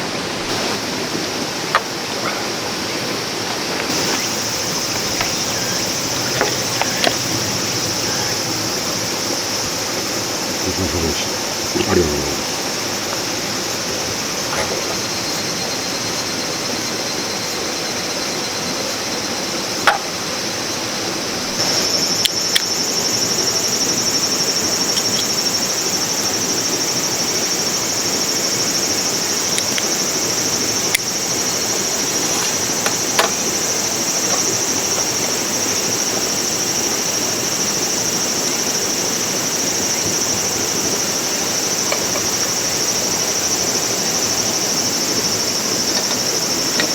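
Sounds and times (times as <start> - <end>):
high steady buzz: 3.9 - 14.4.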